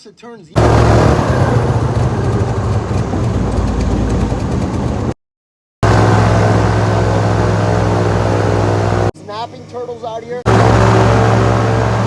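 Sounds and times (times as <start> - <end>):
boat engine running: 0.6 - 5.2, 5.8 - 9.1, 10.5 - 12.0.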